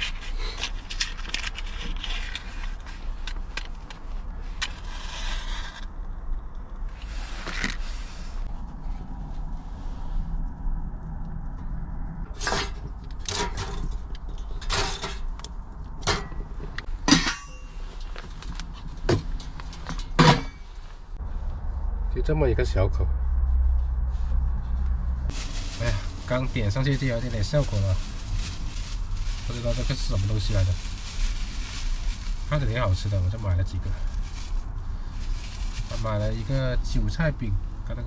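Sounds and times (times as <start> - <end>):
steady low hum: 5.8 - 29.9
charcoal and metal clinking: 12.3 - 20.9.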